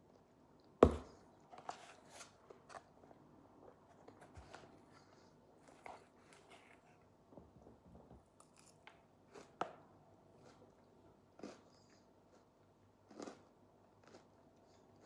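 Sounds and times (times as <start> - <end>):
person eating with crunches: 10.3 - 15.0.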